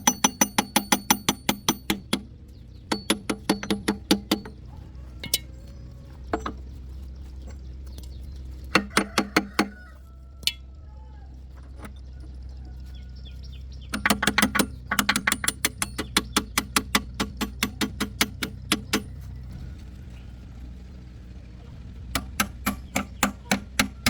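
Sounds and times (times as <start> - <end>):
hammer striking metal: 0.0 - 2.3, 2.9 - 4.6, 8.8 - 9.8, 13.9 - 19.2, 22.1 - 24.0
steady low hum: 0.0 - 24.0.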